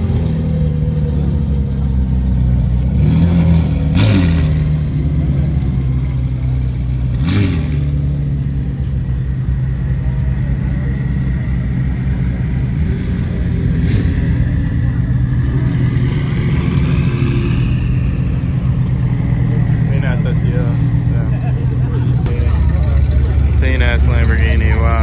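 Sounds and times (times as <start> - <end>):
car engine idling: 0.0 - 25.0
engine rev blip: 0.0 - 25.0.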